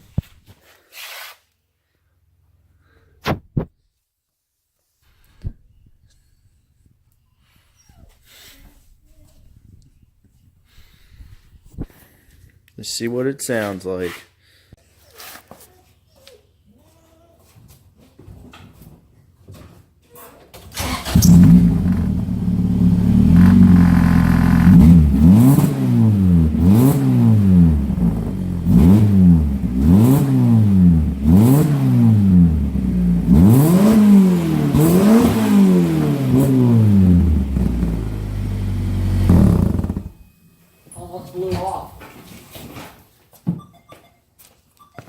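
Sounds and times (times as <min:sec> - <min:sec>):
motorcycle engine starting and revving: 0:20.8 - 0:40.3.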